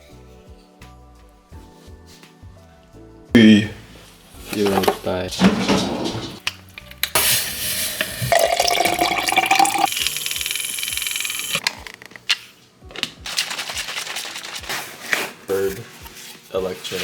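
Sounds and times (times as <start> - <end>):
water running into a container: 7.2 - 11.6.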